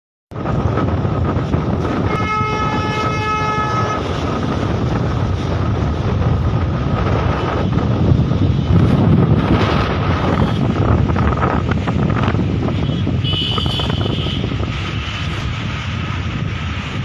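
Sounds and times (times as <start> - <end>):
strong wind buffeting microphone: 0.3 - 17.0
horn steady note: 2.1 - 4.1.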